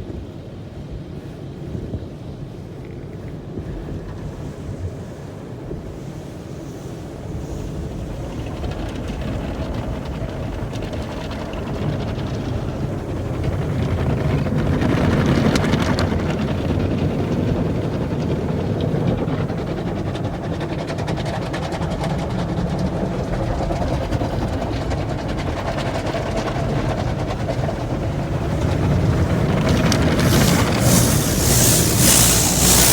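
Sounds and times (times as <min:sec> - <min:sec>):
car wash machinery noise: 0:15.6 - 0:32.9
car wash spraying water: 0:29.2 - 0:32.9.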